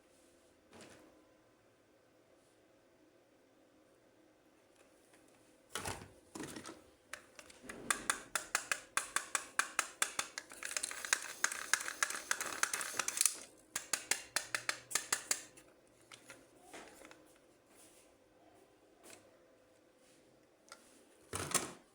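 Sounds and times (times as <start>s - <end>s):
sharp clicks of toy packaging: 7.2s - 15.6s
plastic crinkling: 10.0s - 13.6s.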